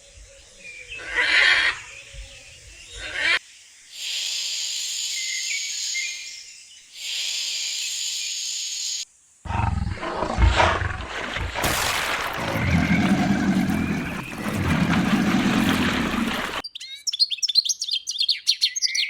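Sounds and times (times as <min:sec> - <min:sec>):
big cat hissing: 0:09.5 - 0:16.6
big cat roaring: 0:09.5 - 0:16.6.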